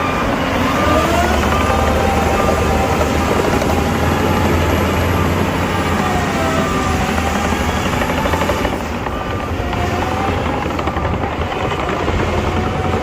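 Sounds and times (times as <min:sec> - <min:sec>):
deep diesel engine rumble: 0:00.0 - 0:13.0.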